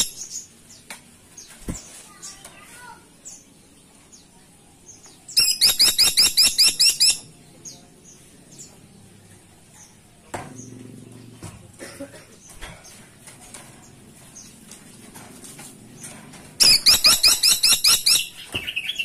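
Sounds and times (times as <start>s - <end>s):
faint bird chirps: 4.2s - 8.8s
woodpecker calling: 5.4s - 7.3s, 16.6s - 19.0s.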